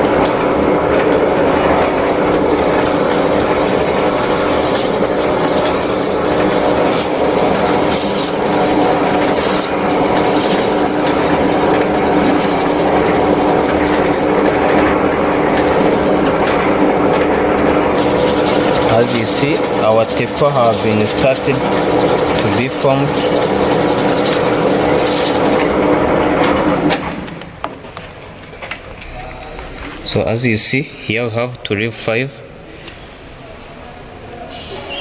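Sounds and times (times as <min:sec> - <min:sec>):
metal lathe humming: 0:00.0 - 0:26.2
high metallic cutting squeal: 0:01.2 - 0:17.3, 0:17.9 - 0:25.6.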